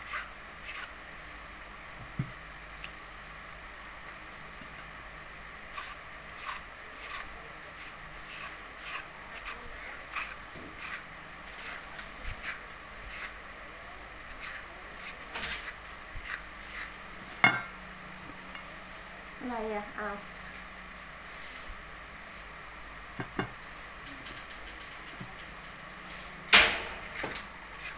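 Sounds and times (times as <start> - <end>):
peeler scraping papaya skin: 0.0 - 0.9, 5.7 - 13.4, 14.4 - 16.9, 27.1 - 27.9.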